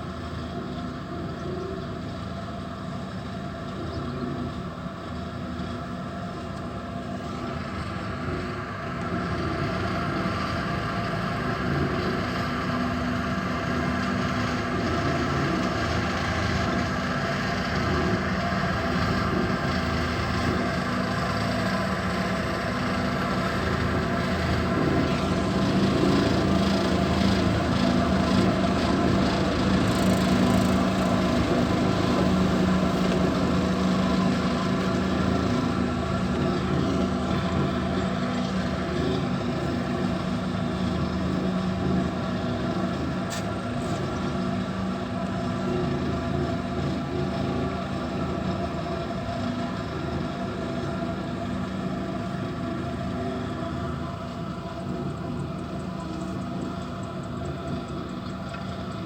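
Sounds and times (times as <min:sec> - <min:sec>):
compaction machine engine running: 0:00.0 - 0:59.0.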